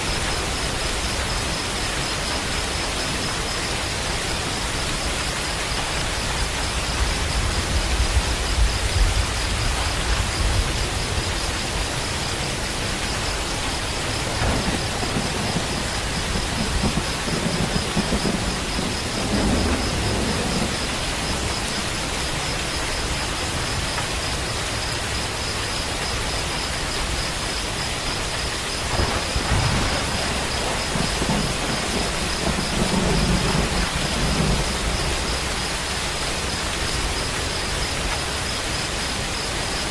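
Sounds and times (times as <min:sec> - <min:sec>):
thunder rumbling: 0:00.0 - 0:23.9, 0:27.0 - 0:38.1
steady rain falling: 0:00.0 - 0:39.9.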